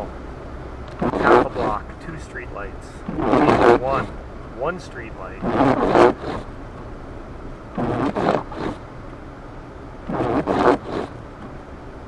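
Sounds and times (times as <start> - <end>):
car road rumble: 0.0 - 12.0
windshield wipers scraping snow: 0.9 - 2.4, 3.0 - 6.6, 7.7 - 8.8, 10.0 - 11.6.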